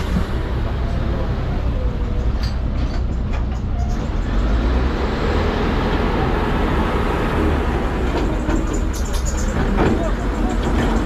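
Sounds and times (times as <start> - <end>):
vehicle engines passing slowly: 0.0 - 11.0.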